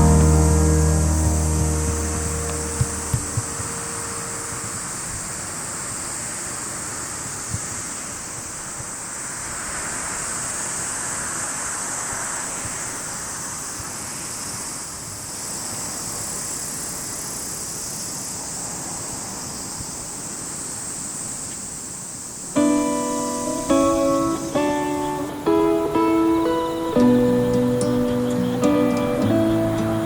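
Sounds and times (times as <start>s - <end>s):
high-pitched hiss: 0.0s - 30.0s.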